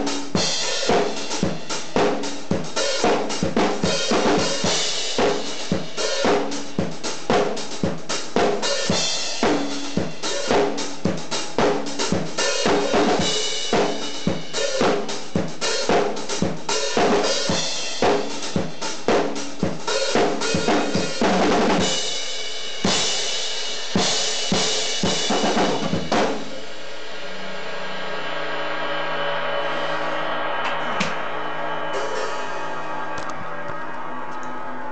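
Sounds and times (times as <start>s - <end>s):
rock backing track: 0.0s - 27.0s
drum kit played fast: 0.0s - 34.9s.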